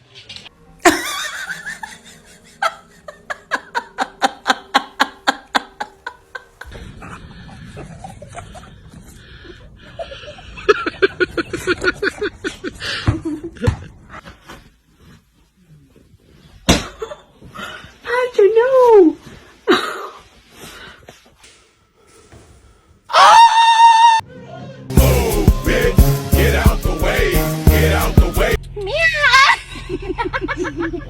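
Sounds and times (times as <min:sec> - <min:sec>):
person laughing: 0:00.8 - 0:08.8.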